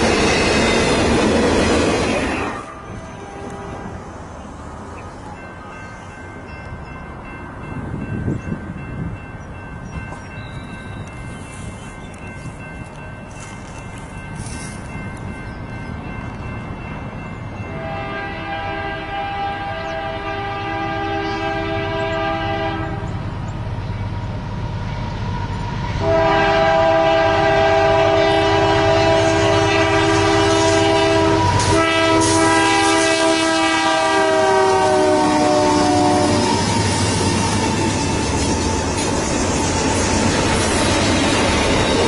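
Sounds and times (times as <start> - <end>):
train rumble: 0.0 - 42.0
locomotive air horn blasts: 2.4 - 4.1, 17.7 - 23.1, 26.0 - 36.7.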